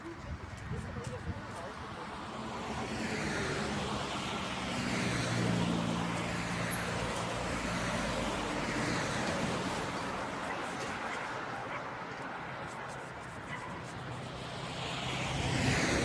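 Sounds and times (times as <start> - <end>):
vehicle passing by: 2.2 - 10.4, 14.0 - 16.0.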